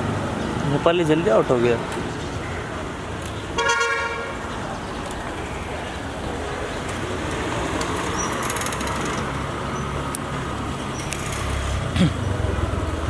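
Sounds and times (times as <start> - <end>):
road noise: 0.0 - 13.0
vehicle engine hum: 4.5 - 13.0.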